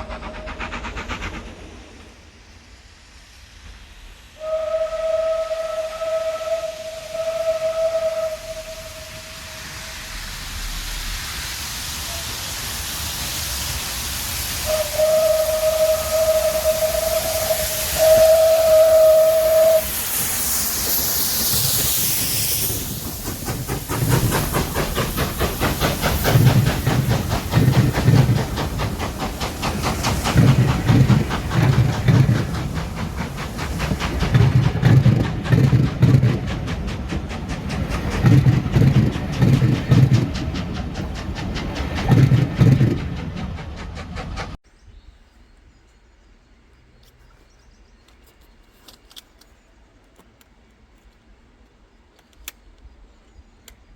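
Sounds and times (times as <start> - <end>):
hiss of released steam: 0.0 - 44.6
steam locomotive whistle: 4.3 - 11.1, 11.9 - 12.9, 14.4 - 21.6
locomotive exhaust beats: 4.4 - 44.6.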